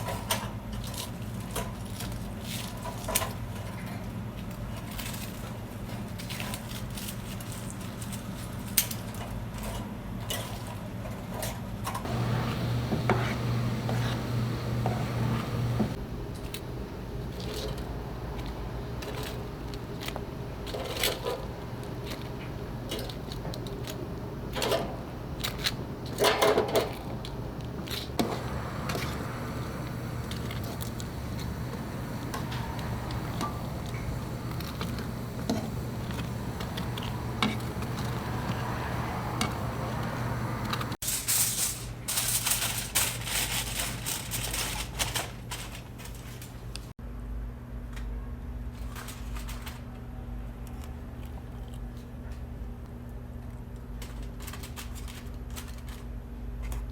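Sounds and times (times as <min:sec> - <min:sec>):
kitchen clicks and knocks: 0:12.1 - 0:16.0, 0:24.6 - 0:40.9
crackling hiss: 0:12.1 - 0:41.0
steady hum: 0:12.1 - 0:41.0.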